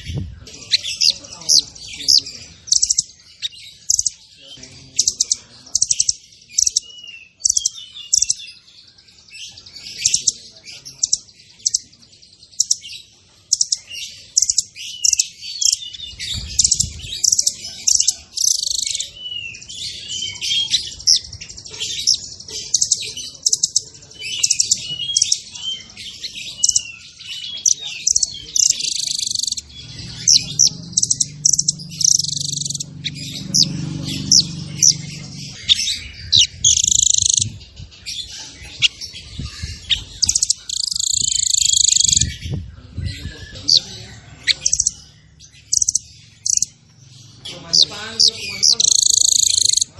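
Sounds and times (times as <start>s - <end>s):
songbird singing rapid chirps: 0.0s - 49.9s
low murmur: 27.2s - 41.5s.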